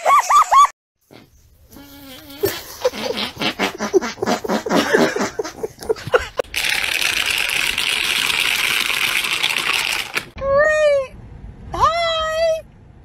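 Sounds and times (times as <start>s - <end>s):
plastic bottle crackling: 6.4s - 10.4s.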